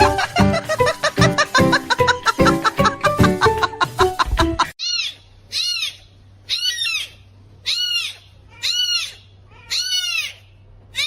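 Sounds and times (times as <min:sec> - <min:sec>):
animal high-pitched cry: 0:04.8 - 0:11.0.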